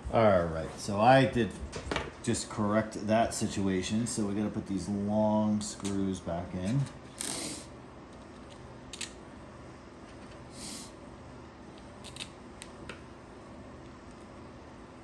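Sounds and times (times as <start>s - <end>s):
small sharp clicks of parts: 8.1s - 9.2s.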